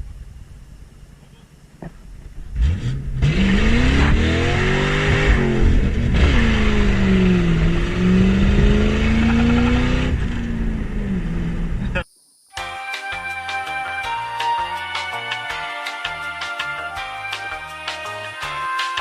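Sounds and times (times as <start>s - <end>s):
car engine accelerating hard: 2.4s - 11.9s.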